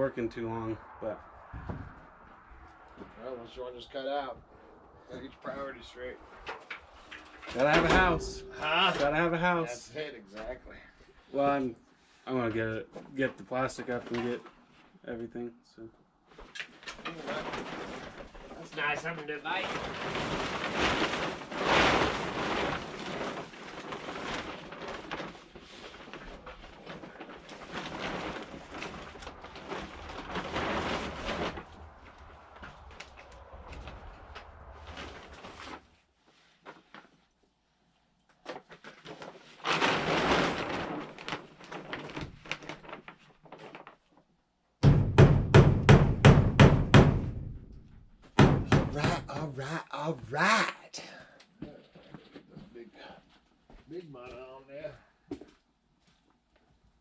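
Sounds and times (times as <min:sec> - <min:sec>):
rustling noise: 0:04.4 - 0:15.0, 0:16.3 - 0:44.4
plastic sheeting crinkling: 0:05.5 - 0:10.6, 0:11.3 - 0:15.0, 0:16.3 - 0:44.4.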